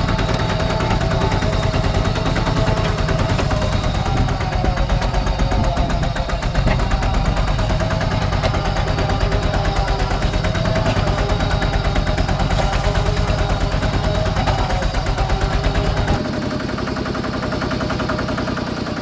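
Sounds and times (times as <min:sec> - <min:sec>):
diesel engine knocking: 0:00.0 - 0:19.0.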